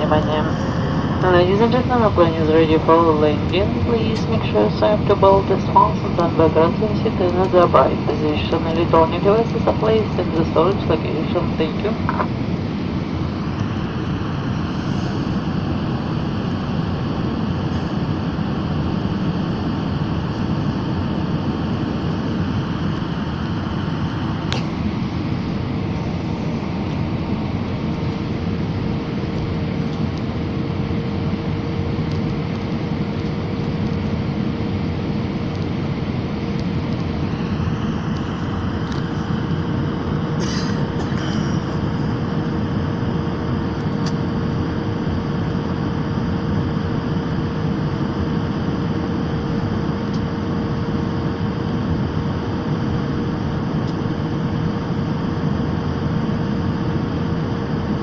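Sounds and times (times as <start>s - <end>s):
airliner engine and airflow rumble: 0.0s - 58.0s
steady hum: 0.0s - 58.0s.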